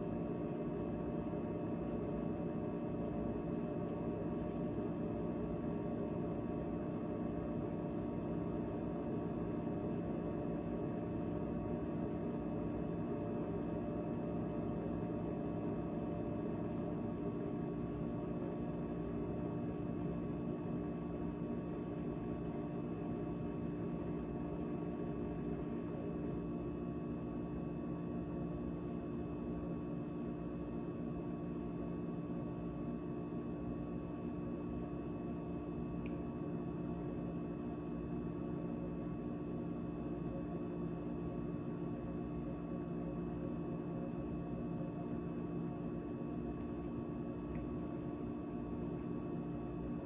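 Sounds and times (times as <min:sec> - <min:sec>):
refrigerator humming: 0:00.0 - 0:50.0
faint tick: 0:47.5 - 0:47.7.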